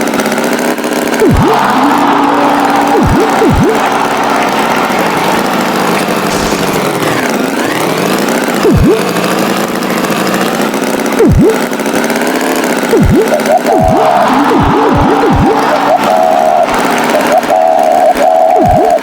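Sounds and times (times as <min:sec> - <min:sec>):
cartoon tractor engine: 0:00.0 - 0:19.0
swooping sound effects: 0:01.1 - 0:09.3, 0:11.2 - 0:11.7, 0:12.9 - 0:19.0.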